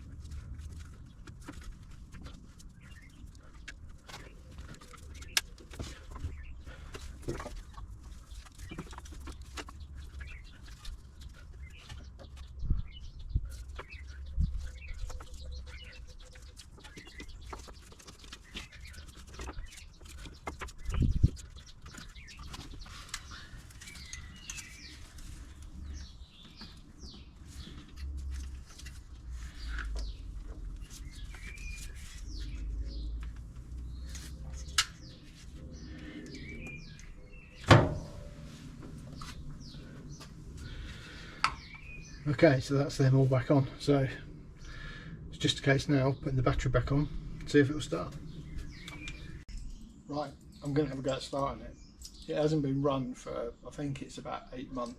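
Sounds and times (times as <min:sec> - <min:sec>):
birds chirping: 0:00.0 - 0:54.9
thumps: 0:37.6 - 0:38.4.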